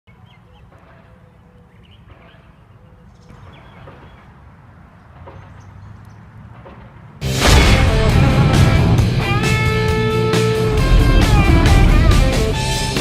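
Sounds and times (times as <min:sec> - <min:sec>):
low rumble: 0:07.3 - 0:13.0.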